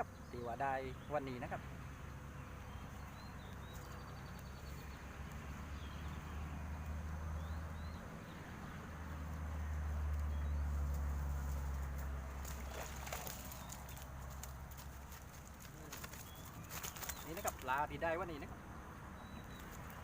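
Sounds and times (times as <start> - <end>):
faint bird chirps: 15.8 - 20.0.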